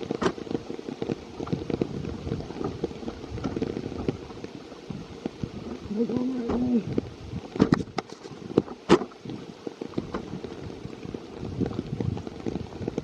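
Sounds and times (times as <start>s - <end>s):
rain in forest: 0.0s - 13.0s
sharp ticks and knocks: 6.4s - 10.6s.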